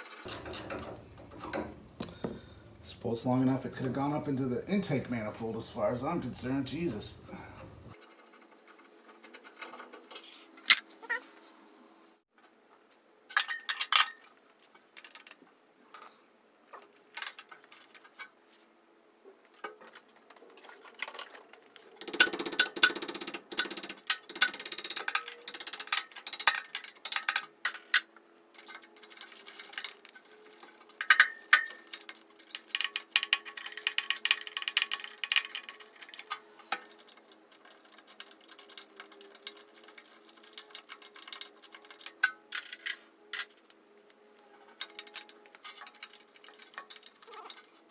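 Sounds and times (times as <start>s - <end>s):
hand tools clinking on metal: 0.0s - 3.0s.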